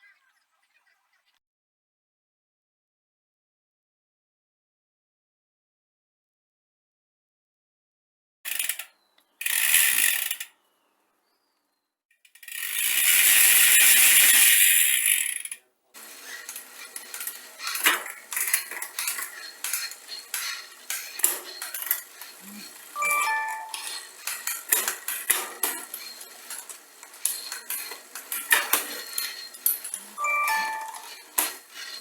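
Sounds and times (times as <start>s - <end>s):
metallic clinks and rattles: 16.3s - 32.0s.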